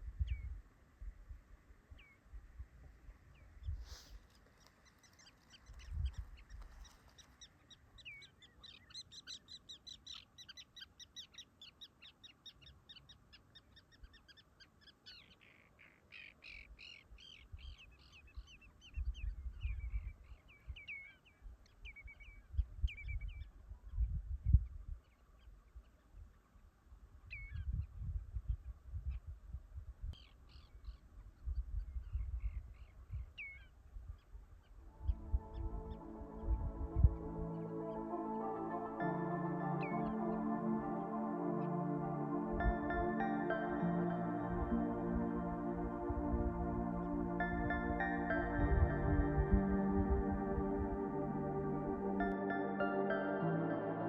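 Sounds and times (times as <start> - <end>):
bird chirping: 3.3 - 23.5.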